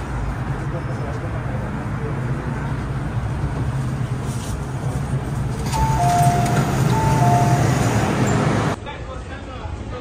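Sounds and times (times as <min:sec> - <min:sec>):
low hum of train: 0:00.0 - 0:10.0
two-note electronic chime: 0:05.8 - 0:08.0.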